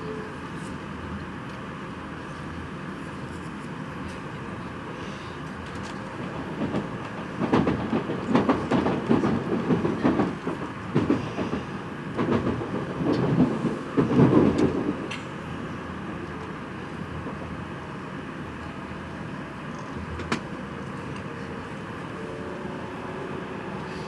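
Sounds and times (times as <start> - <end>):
train rumble: 0.0 - 24.0
train wheels clattering: 5.3 - 17.8, 18.5 - 22.6.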